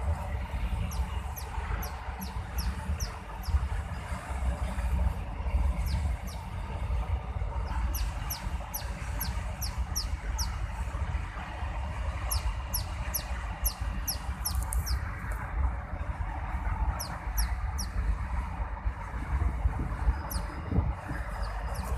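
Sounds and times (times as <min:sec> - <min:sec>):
small bird peeping: 0:00.8 - 0:03.7, 0:07.7 - 0:10.6, 0:12.3 - 0:15.1, 0:17.0 - 0:18.0, 0:20.2 - 0:20.6, 0:21.2 - 0:21.9.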